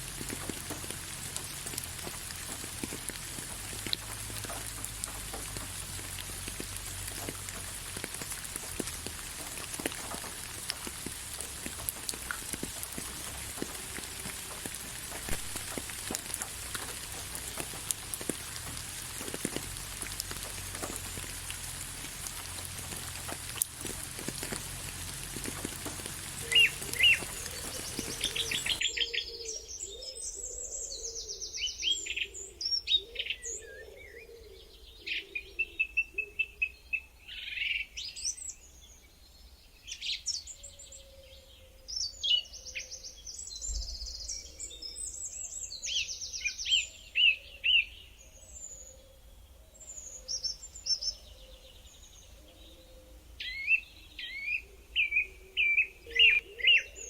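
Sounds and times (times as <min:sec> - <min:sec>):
rain falling: 0:00.0 - 0:28.9
songbirds chirping and trilling: 0:00.1 - 0:57.0.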